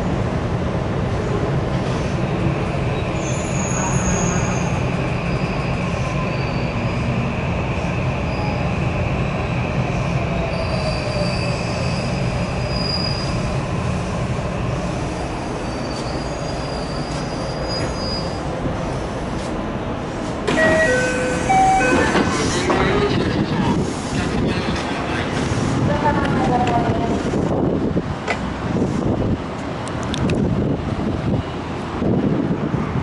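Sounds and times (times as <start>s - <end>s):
high wheel squeal: 3.2s - 7.1s, 10.5s - 13.4s, 15.6s - 18.5s, 20.5s - 23.1s
train running rumble: 11.1s - 33.0s.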